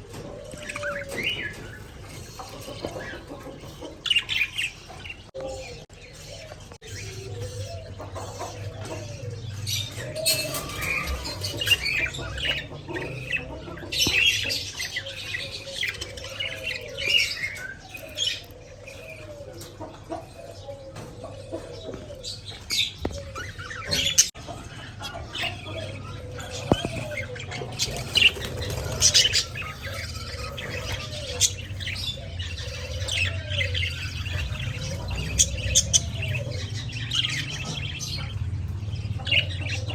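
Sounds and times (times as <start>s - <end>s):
budgerigars chirping and chattering: 0.0s - 39.9s
wings fluttering: 26.6s - 31.7s.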